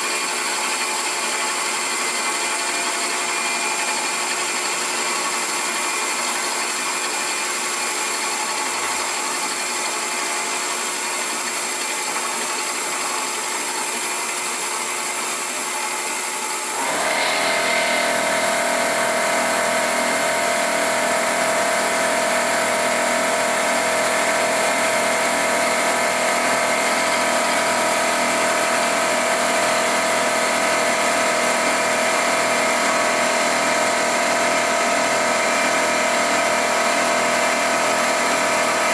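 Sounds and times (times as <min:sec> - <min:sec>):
milling machine cutting metal: 0:00.0 - 0:38.9.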